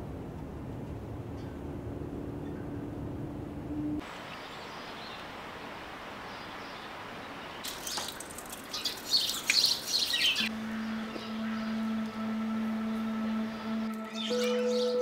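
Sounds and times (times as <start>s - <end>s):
steady low hum: 0.0s - 4.0s, 10.4s - 15.0s
songbirds chirping: 2.3s - 15.0s
outdoor hiss: 4.0s - 13.0s.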